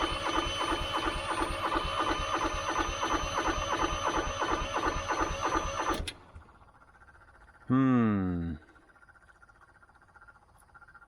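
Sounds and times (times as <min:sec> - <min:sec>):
starter cranking small engine: 0:00.0 - 0:06.2.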